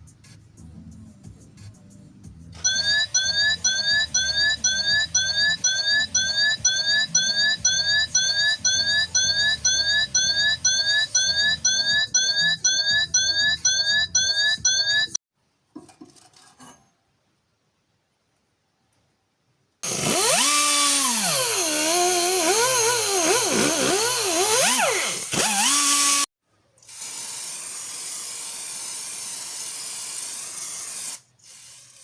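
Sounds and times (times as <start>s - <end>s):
electronic chirp: 2.6s - 15.2s.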